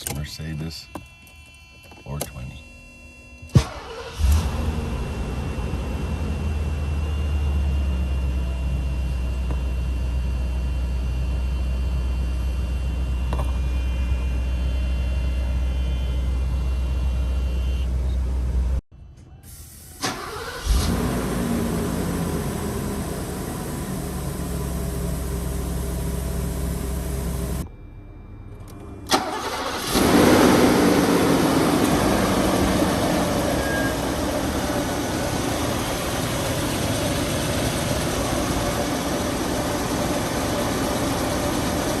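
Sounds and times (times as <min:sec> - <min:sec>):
car engine cranking and starting: 0:03.6 - 0:10.1, 0:20.0 - 0:27.6, 0:28.5 - 0:42.0
car engine idling: 0:03.6 - 0:18.8, 0:20.1 - 0:27.6, 0:28.6 - 0:42.0.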